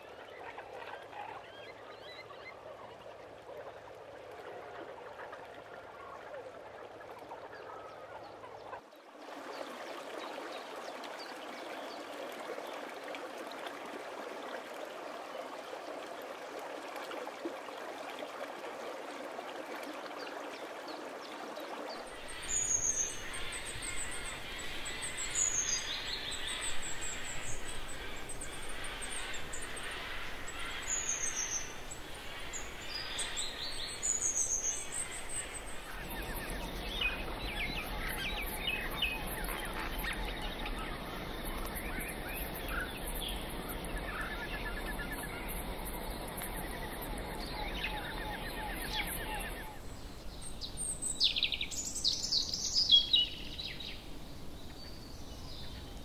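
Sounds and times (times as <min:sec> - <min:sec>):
steady noise wash: 0:22.1 - 0:50.3
birds chirping: 0:22.3 - 0:49.8.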